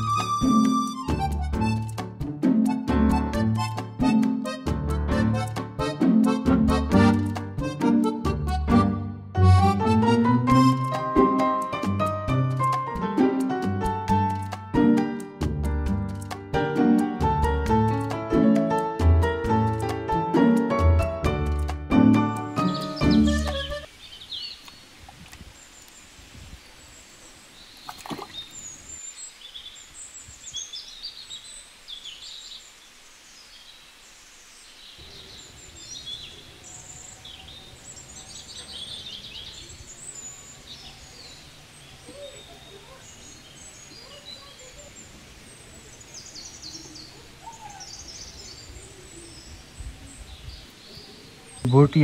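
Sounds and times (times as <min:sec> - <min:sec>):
small birds chirping: 0:22.6 - 0:52.0.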